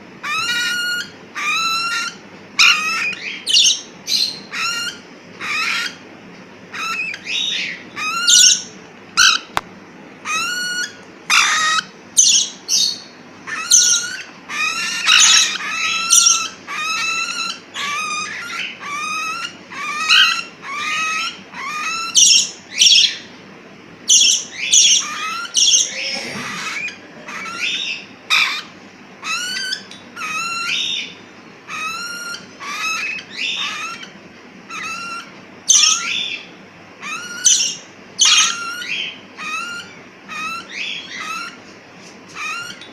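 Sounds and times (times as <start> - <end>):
baby parrots calling: 0.2 - 6.0, 6.7 - 9.6, 10.2 - 23.4, 24.0 - 42.9.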